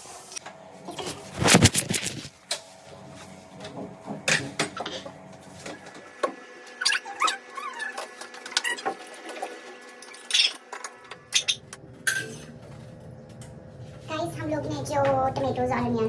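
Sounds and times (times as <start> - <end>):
kitchen utensils clattering: 3.6 - 5.9, 7.9 - 12.8.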